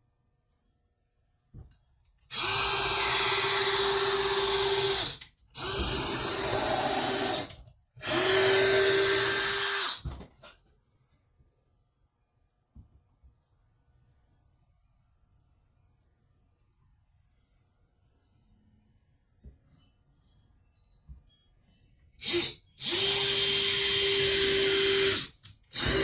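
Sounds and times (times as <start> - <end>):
power drill whining: 2.3 - 10.2, 22.2 - 26.0.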